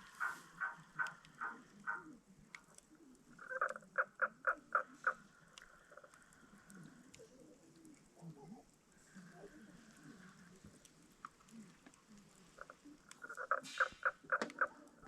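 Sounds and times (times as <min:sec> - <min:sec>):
animal calling: 0:00.0 - 0:08.0, 0:11.5 - 0:15.0
campfire crackling clicks: 0:00.0 - 0:15.0.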